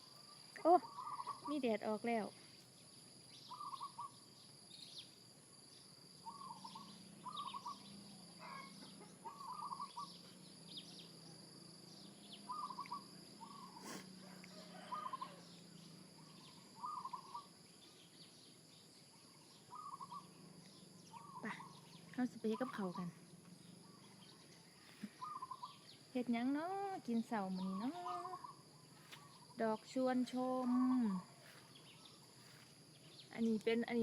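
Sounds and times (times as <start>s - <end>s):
bird chirps: 0.0s - 34.0s
high insect drone: 0.0s - 34.0s
short trilling call: 24.9s - 25.8s.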